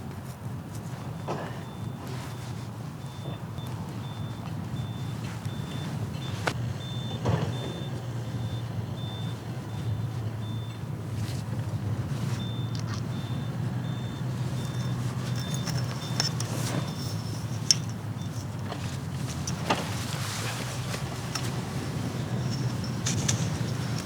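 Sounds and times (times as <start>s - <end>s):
vehicle idling: 0.0s - 24.0s.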